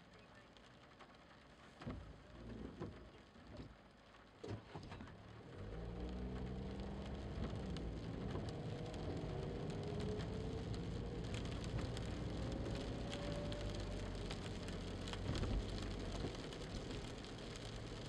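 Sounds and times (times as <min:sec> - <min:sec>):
rain and wet road noise: 0:00.0 - 0:18.0
car engine accelerating: 0:05.1 - 0:18.0.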